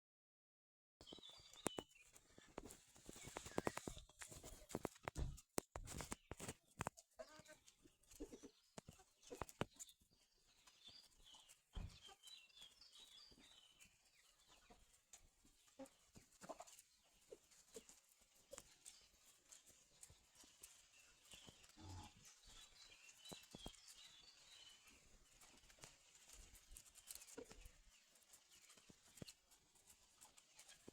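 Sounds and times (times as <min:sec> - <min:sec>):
chickens clucking: 0:01.0 - 0:05.2, 0:05.8 - 0:30.9
sharp clicks and knocks: 0:02.6 - 0:07.0.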